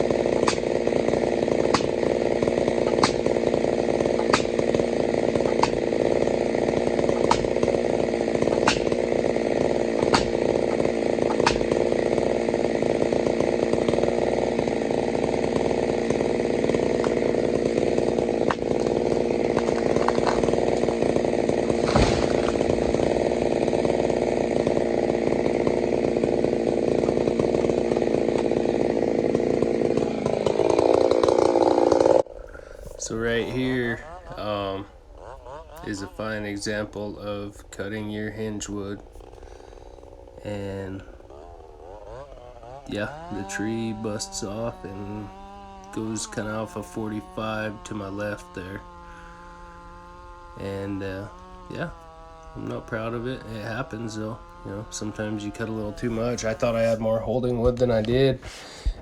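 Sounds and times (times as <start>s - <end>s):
sharp ticks: 0.0s - 29.2s
chainsaw cutting wood: 0.0s - 59.0s.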